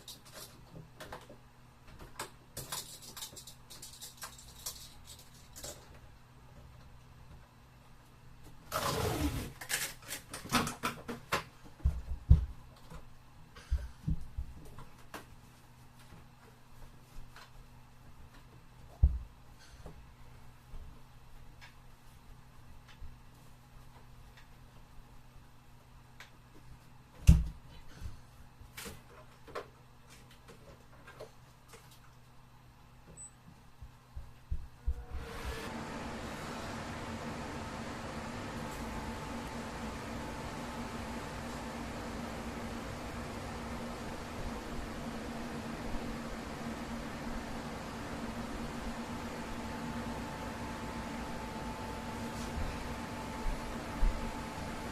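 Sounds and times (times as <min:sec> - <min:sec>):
faint steady hum: 0:00.0 - 0:54.9.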